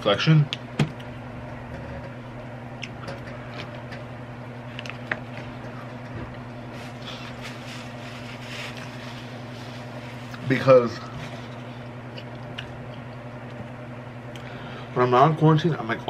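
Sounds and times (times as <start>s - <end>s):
steady hum: 0.0s - 16.0s
paper napkin rustling: 6.7s - 10.3s
person chewing: 11.7s - 13.6s.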